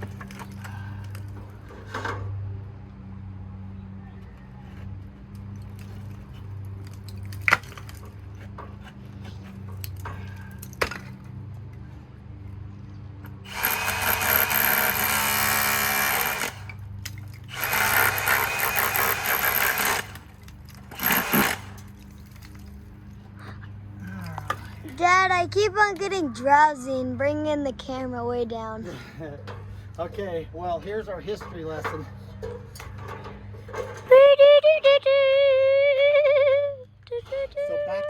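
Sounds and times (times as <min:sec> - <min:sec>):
power tool running: 0:13.3 - 0:16.8, 0:17.4 - 0:22.0.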